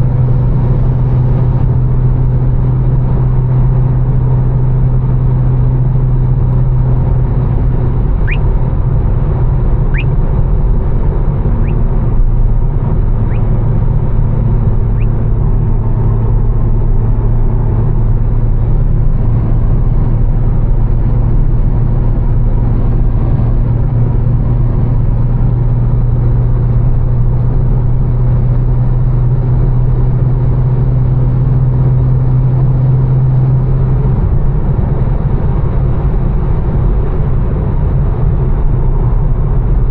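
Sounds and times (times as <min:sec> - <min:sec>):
car engine droning at cruise: 0:00.0 - 0:39.9
faint short rising chirps: 0:08.2 - 0:08.5, 0:09.9 - 0:10.2, 0:11.6 - 0:11.8, 0:13.2 - 0:13.5.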